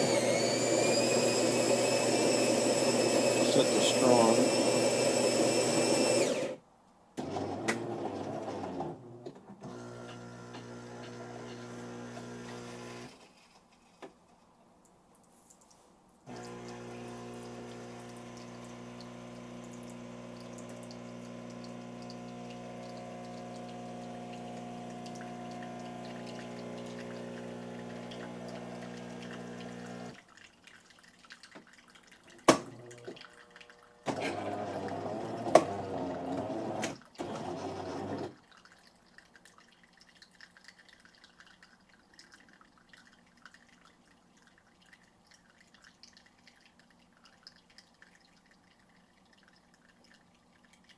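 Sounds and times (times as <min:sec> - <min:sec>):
coffee machine humming: 0:00.0 - 0:06.6, 0:07.2 - 0:09.0, 0:09.6 - 0:13.2, 0:16.3 - 0:30.2, 0:32.8 - 0:38.4
faint dripping: 0:14.3 - 0:16.8, 0:17.7 - 0:34.1, 0:38.4 - 0:50.9.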